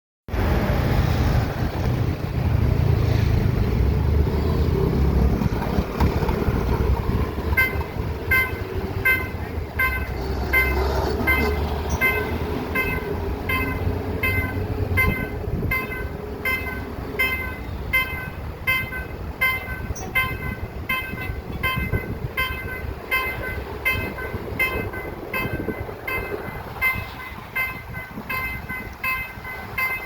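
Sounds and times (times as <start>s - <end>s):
diesel train rumbling: 0.3s - 30.0s
warning bell ringing: 7.6s - 30.0s.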